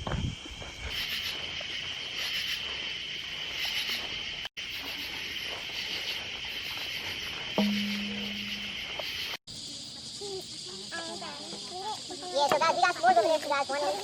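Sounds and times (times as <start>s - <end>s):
insects buzzing trill: 0.0s - 14.0s.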